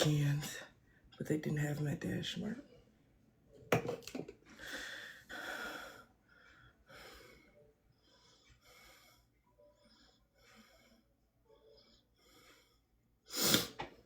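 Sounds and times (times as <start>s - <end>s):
person breathing: 4.5s - 13.7s.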